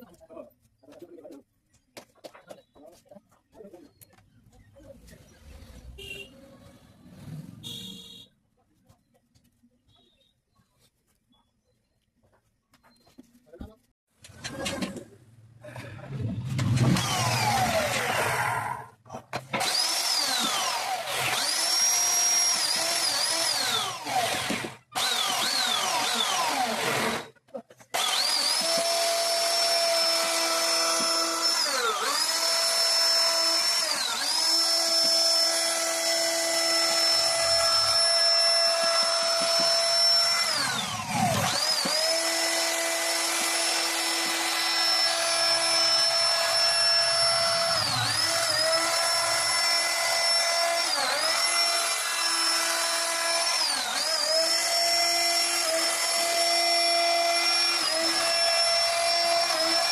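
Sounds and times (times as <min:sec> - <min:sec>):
router spindle whining: 0:16.1 - 0:27.3, 0:27.9 - 0:59.9.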